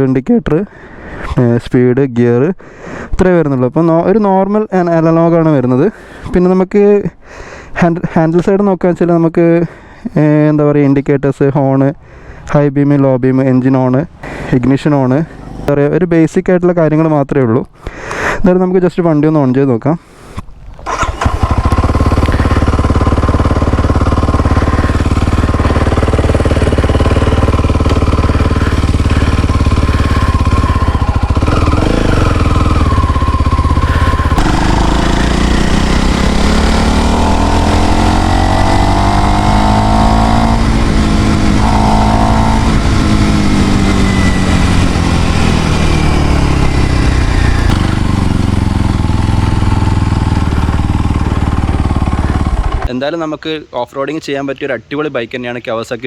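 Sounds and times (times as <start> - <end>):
motorcycle engine idling and revving: 15.0 - 15.8, 20.8 - 52.9.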